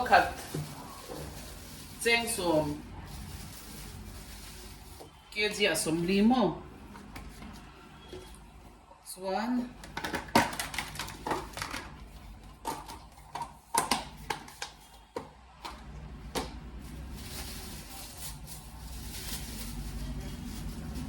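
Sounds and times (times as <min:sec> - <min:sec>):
clicks taps and rustles: 0:09.8 - 0:16.6.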